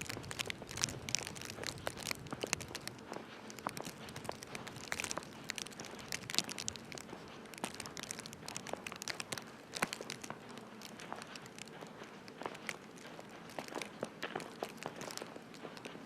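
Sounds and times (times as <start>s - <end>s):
footsteps crunching on snow: 0.0s - 16.0s.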